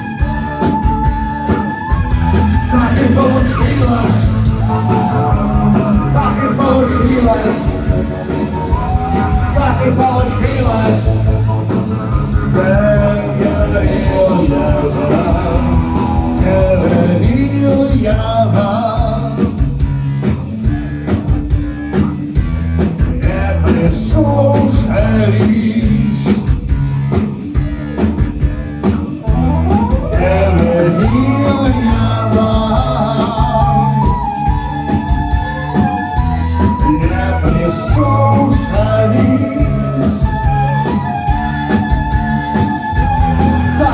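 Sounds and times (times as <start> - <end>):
person singing: 0.0 - 11.3, 12.3 - 19.6, 29.2 - 41.3
live rock band playing: 0.0 - 43.9.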